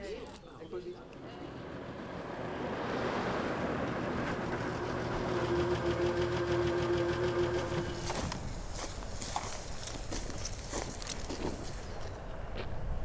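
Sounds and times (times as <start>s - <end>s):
car engine running: 1.2s - 9.2s.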